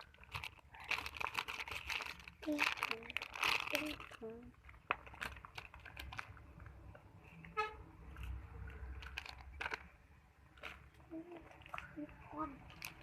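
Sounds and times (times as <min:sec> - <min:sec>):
vehicle horn toot: 0:07.5 - 0:07.9.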